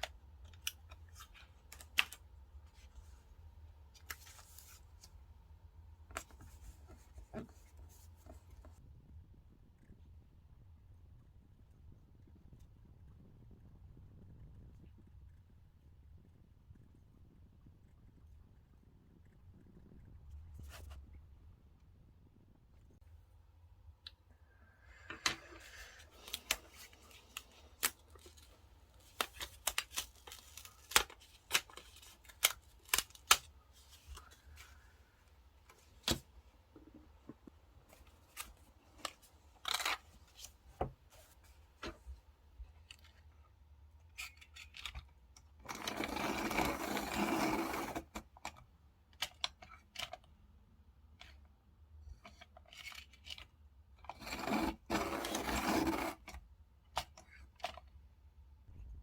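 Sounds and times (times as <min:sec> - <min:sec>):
scratchy rubbing or peeling: 0:54.2 - 0:56.3.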